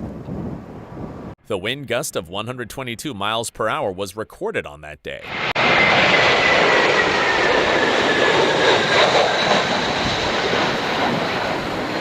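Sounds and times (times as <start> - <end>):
high engine whine: 5.2 - 12.0
jet airliner engine rushing: 5.2 - 12.0.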